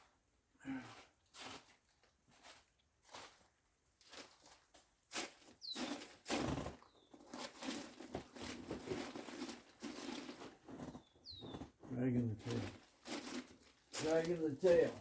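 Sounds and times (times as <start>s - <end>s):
bird chirping: 5.6s - 6.1s, 6.8s - 7.2s, 10.9s - 11.7s.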